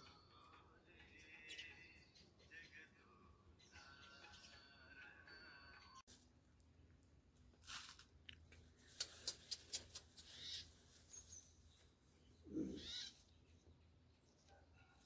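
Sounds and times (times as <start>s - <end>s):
sparrows chirping: 0.0s - 5.0s, 9.1s - 14.6s.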